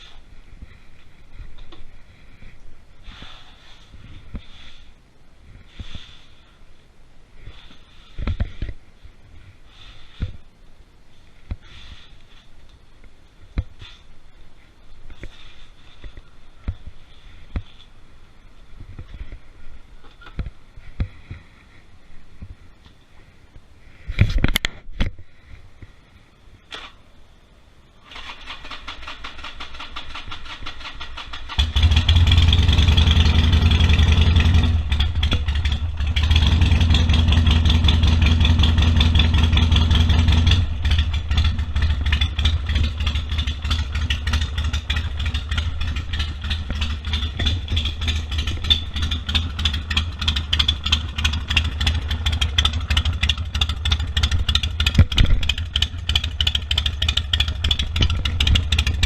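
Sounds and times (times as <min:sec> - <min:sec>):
motorcycle engine running: 0:28.7 - 0:59.0.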